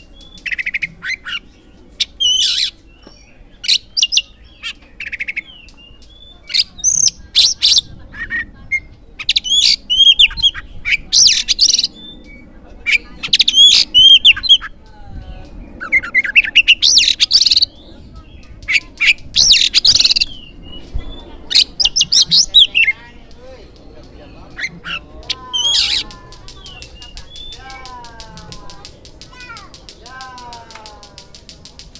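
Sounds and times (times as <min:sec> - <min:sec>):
bird singing whistles and trills: 0:00.0 - 0:30.1.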